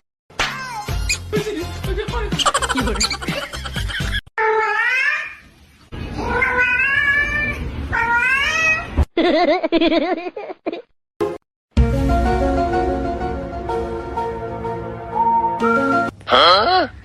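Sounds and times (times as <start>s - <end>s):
cat yowling: 6.2s - 8.8s.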